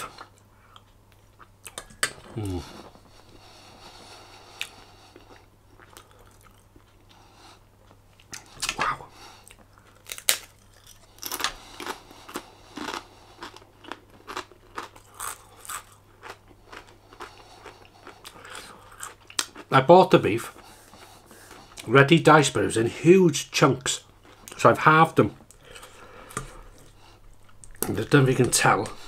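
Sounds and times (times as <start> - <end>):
person chewing food: 0.0 - 19.7, 20.5 - 21.9, 24.0 - 24.6, 25.4 - 29.0.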